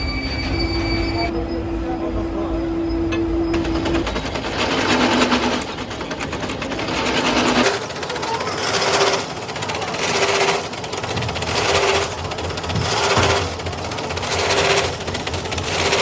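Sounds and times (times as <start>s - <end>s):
power tool hammering on metal: 3.1s - 16.0s.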